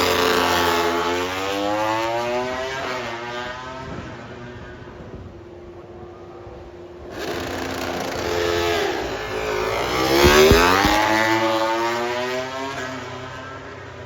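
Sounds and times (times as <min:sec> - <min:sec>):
engine exhaust cracks: 0:10.0 - 0:11.5.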